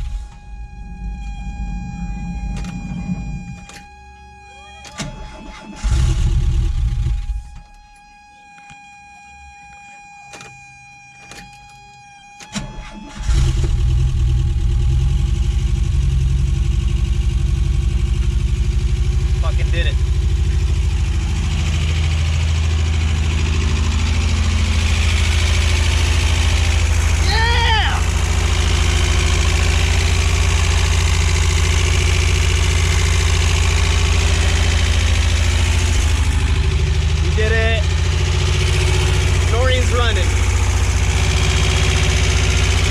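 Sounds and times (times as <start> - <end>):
engine starting and running: 0.0 - 7.6, 12.3 - 42.9
steady high whine: 0.0 - 8.4, 16.0 - 42.9.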